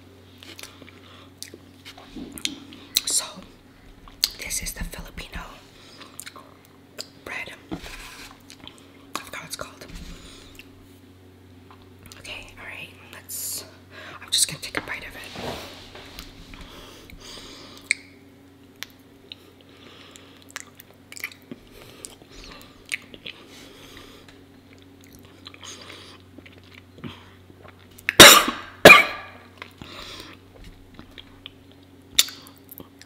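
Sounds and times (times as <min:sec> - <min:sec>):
sticky wet chewing: 0:18.8 - 0:28.2
person coughing: 0:28.2 - 0:29.4.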